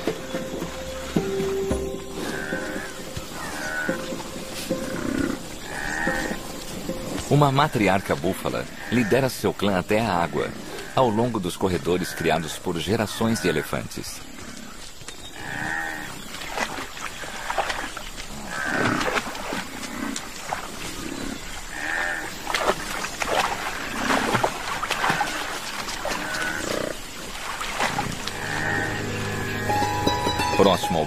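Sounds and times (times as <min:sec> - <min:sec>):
water buffalo grunting and lowing: 0:00.0 - 0:09.3, 0:27.8 - 0:29.7.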